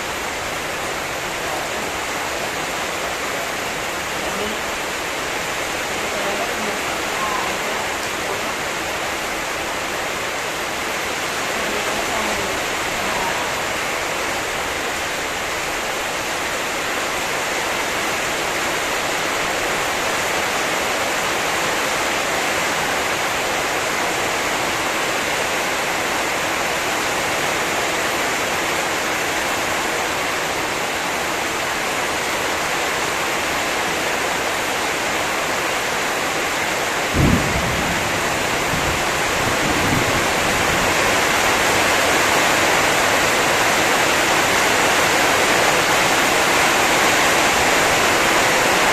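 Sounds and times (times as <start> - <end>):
heavy rain: 0.0 - 48.9.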